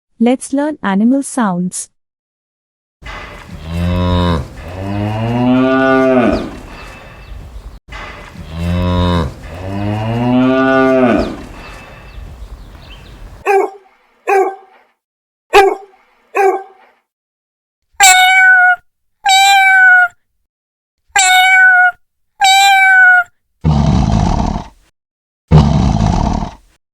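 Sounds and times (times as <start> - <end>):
cow mooing: 3.1 - 7.0, 8.3 - 12.0
dog barking: 13.4 - 14.8, 15.5 - 17.0
cat meowing: 18.0 - 20.2, 21.2 - 23.3.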